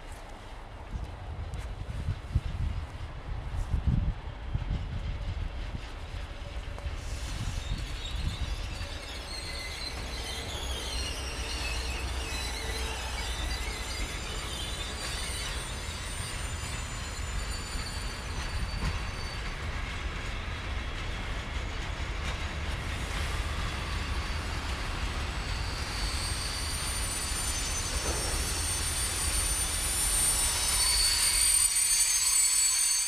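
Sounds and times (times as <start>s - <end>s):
freight train rolling past: 0.0s - 33.0s
high-pitched wheel squeal: 7.1s - 19.7s, 23.4s - 33.0s.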